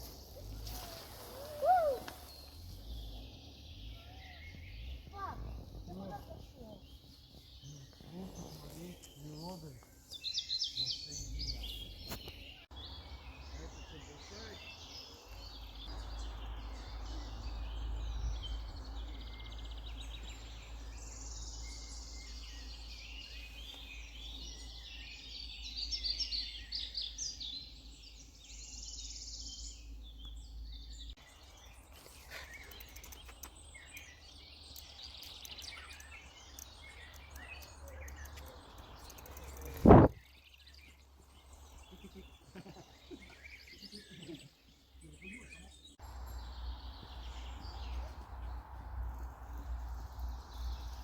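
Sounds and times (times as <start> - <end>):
songbirds singing and chirping: 0.0 - 51.0
wind rumble on microphone: 3.9 - 7.5, 38.8 - 40.2.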